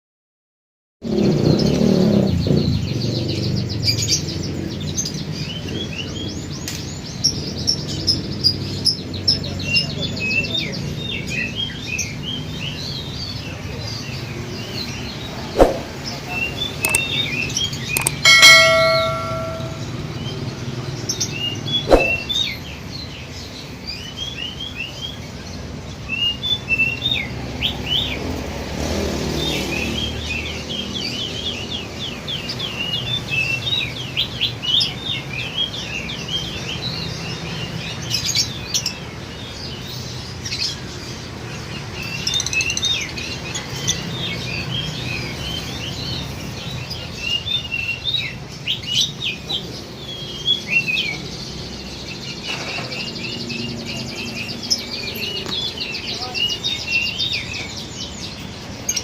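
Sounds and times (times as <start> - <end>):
lovebirds chirping: 13.4 - 20.1, 41.5 - 59.0
sharp knocks: 18.0 - 19.9.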